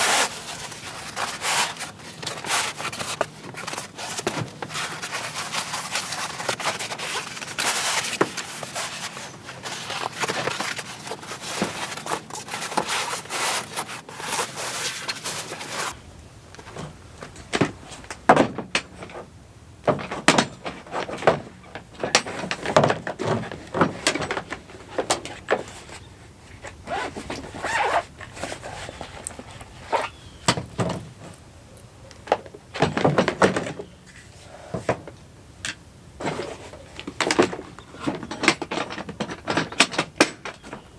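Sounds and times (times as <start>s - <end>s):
rustling and crackling handling: 0.0s - 35.3s
objects knocked and set down: 16.6s - 25.7s, 32.3s - 33.9s, 34.8s - 40.9s.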